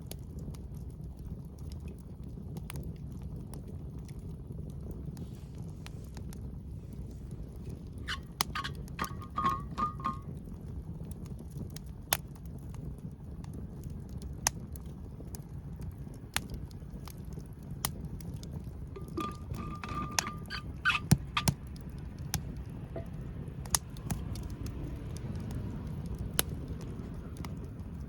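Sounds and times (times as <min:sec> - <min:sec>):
fire pops: 0:00.0 - 0:28.0
wood fire crackling: 0:00.0 - 0:28.0
knocks: 0:08.1 - 0:10.3.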